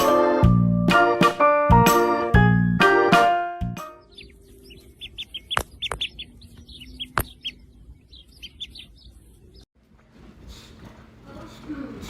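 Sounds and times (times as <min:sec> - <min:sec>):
small birds chirping: 0:03.8 - 0:09.7.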